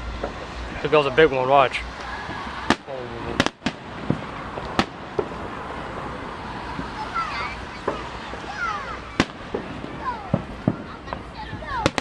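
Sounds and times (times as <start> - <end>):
crowd noise: 0.0 - 12.0
fireworks bangs: 0.0 - 12.0.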